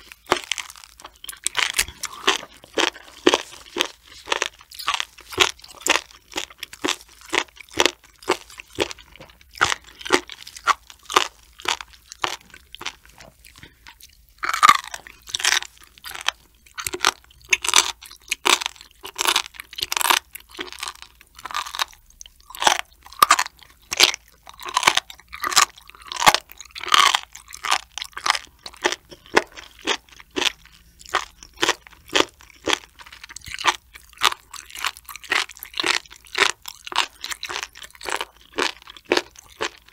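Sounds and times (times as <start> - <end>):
crunchy chewing of cartilage: 0.0 - 39.9.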